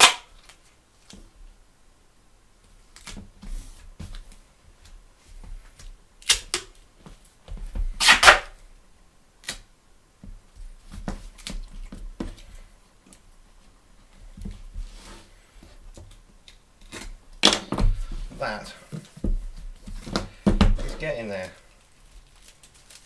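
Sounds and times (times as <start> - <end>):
tape tearing from roll: 0.0 - 0.7, 6.2 - 6.8, 8.0 - 8.6, 20.8 - 23.0.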